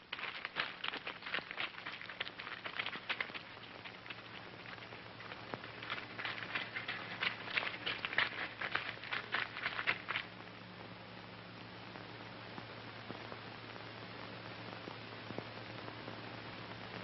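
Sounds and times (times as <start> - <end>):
footsteps on stony ground: 0.0 - 10.3.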